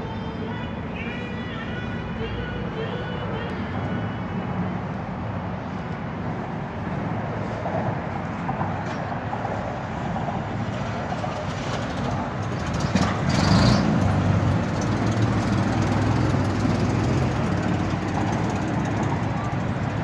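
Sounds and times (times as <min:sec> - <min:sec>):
vehicle engine running: 0:11.4 - 0:20.0.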